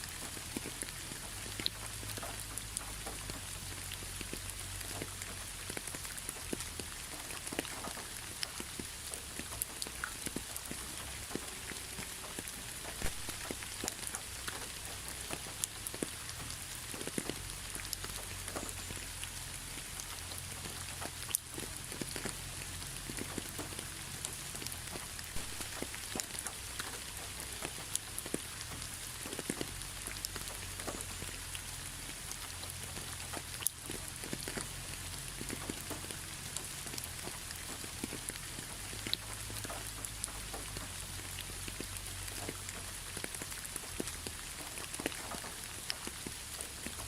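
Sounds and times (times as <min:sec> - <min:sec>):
steady rain falling: 0:00.0 - 0:47.0
raindrops tapping sharply: 0:00.2 - 0:34.5.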